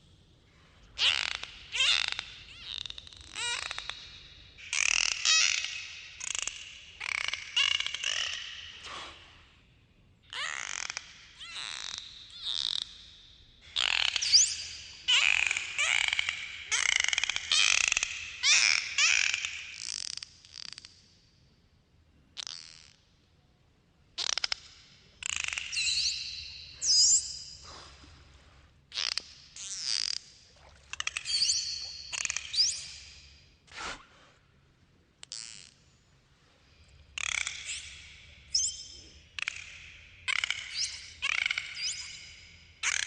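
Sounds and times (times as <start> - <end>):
dolphins pulsed calls underwater: 1.0 - 8.9, 10.3 - 20.7.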